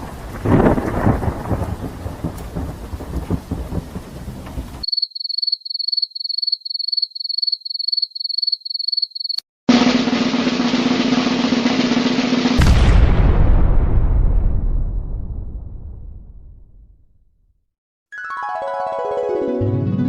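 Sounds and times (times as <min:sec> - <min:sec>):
loud thunder rumble: 0:00.0 - 0:04.8, 0:10.6 - 0:16.9
rain: 0:00.0 - 0:04.9
cricket chirping: 0:04.8 - 0:09.4
drumroll: 0:09.7 - 0:14.6.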